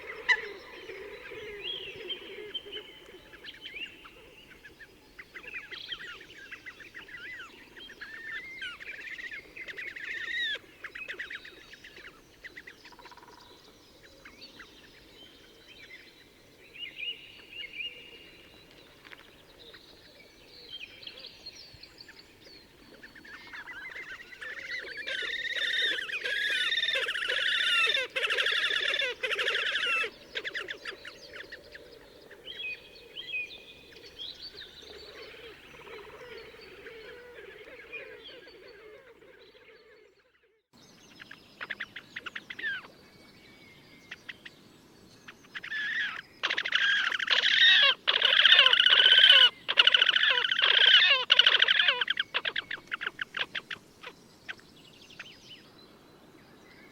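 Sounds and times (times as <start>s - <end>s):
grebes trilling calls: 23.3s - 31.8s, 32.4s - 40.0s, 45.7s - 54.1s.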